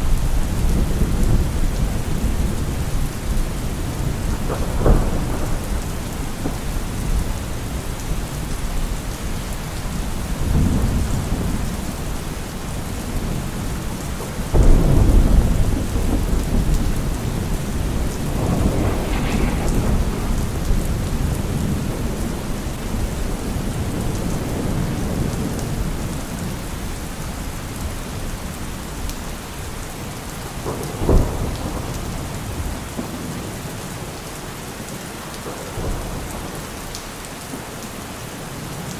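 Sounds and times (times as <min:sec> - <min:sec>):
thunder rumbling: 0:00.0 - 0:26.5
heavy rain falling: 0:00.0 - 0:38.9
sharp thunder crack: 0:14.6 - 0:24.8.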